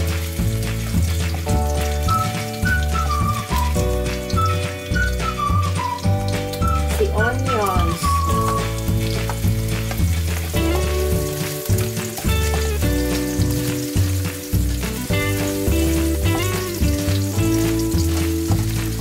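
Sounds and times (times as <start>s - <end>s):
background music: 0.0s - 19.0s
onion sizzling in hot oil: 0.0s - 19.0s.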